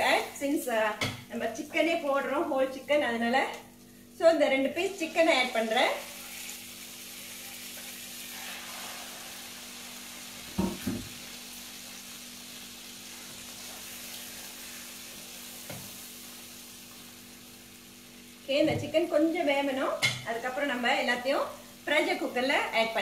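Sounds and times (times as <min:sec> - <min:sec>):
chicken sizzling in hot oil: 0:04.6 - 0:23.0.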